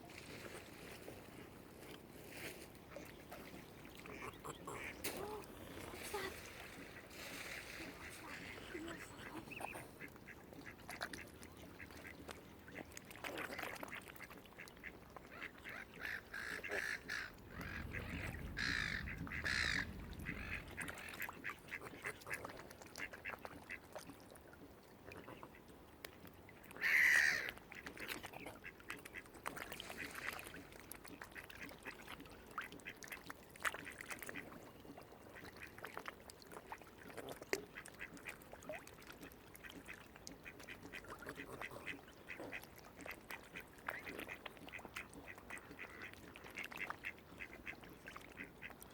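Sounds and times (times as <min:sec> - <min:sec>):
waterfowl nasal calls: 0:04.0 - 0:10.1, 0:15.3 - 0:23.4, 0:26.8 - 0:27.6.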